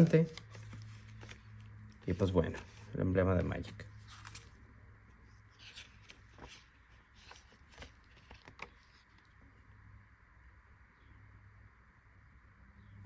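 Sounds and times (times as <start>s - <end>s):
cardboard packaging rustling: 0.0s - 4.6s, 5.4s - 9.4s
low room hum: 0.0s - 13.0s.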